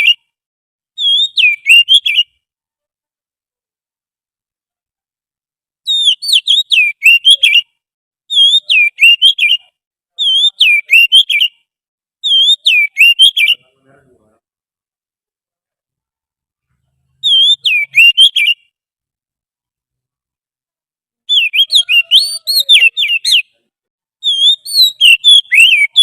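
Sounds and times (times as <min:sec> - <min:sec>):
magpie-robin whistled song: 0:00.0 - 0:00.3, 0:01.0 - 0:02.4, 0:05.8 - 0:13.6, 0:17.2 - 0:18.7, 0:21.3 - 0:23.6, 0:24.2 - 0:26.0.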